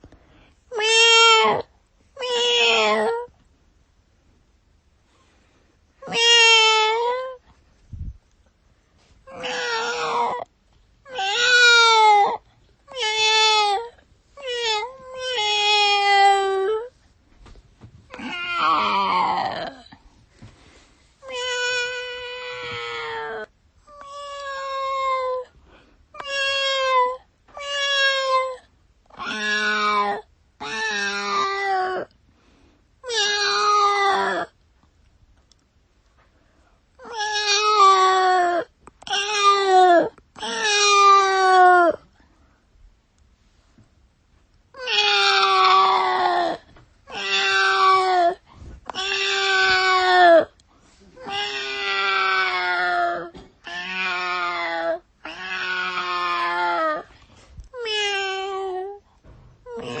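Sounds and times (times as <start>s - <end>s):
cat meowing: 0.7s - 3.3s, 6.0s - 7.4s, 9.3s - 10.5s, 11.1s - 16.9s, 18.1s - 19.8s, 21.2s - 25.4s, 26.2s - 28.6s, 29.2s - 32.1s, 33.0s - 34.5s, 44.8s - 50.5s, 51.2s - 57.1s, 59.7s - 60.0s.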